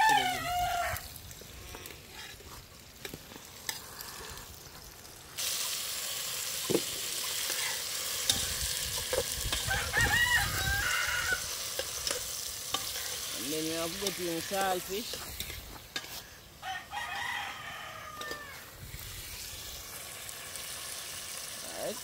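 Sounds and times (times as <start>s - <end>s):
rooster crowing: 0.0s - 1.1s, 9.5s - 11.6s, 16.6s - 18.7s
food sizzling in oil: 0.0s - 22.0s.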